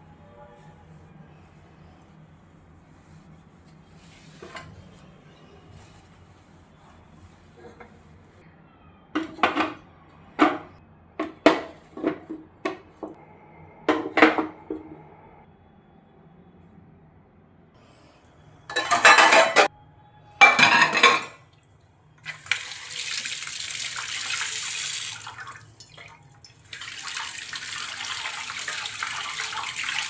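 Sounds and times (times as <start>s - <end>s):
dishes and cutlery clinking: 18.7s - 19.7s, 20.4s - 21.5s.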